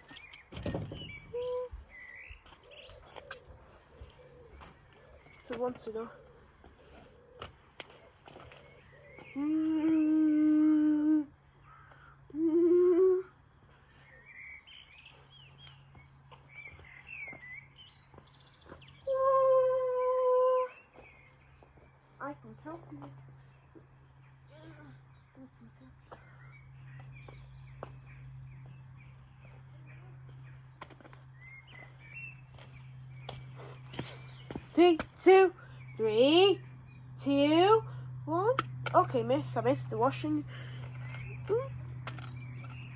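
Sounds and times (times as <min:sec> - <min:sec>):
steady low hum: 0:00.0 - 0:42.9
person humming: 0:09.4 - 0:11.4, 0:12.3 - 0:13.4.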